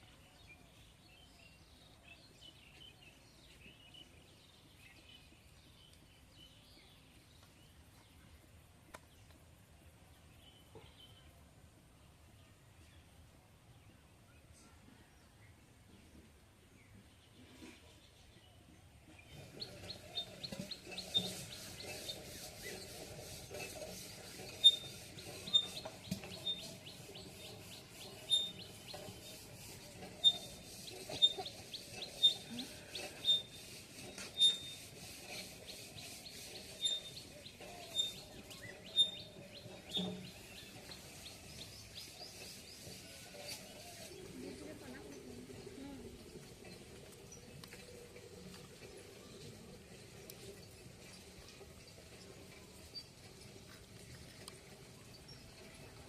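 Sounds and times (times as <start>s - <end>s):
small birds chirping: 16.8s - 56.0s
sharp scrapes: 19.3s - 44.4s.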